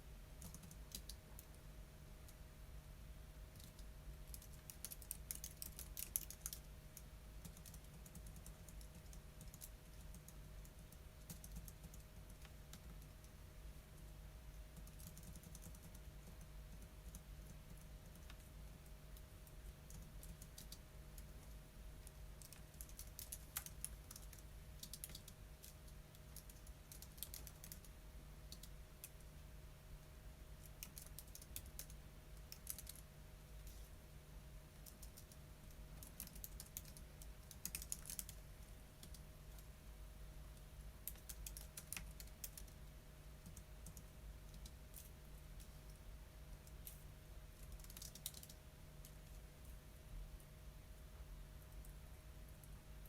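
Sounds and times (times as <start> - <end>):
steady low hum: 0.0 - 53.0
typing on computer keyboard: 0.4 - 1.5, 3.5 - 13.3, 14.7 - 27.9, 28.5 - 29.2, 30.6 - 33.0, 34.8 - 38.4, 39.0 - 39.7, 41.0 - 42.8, 43.4 - 45.8, 47.6 - 49.2.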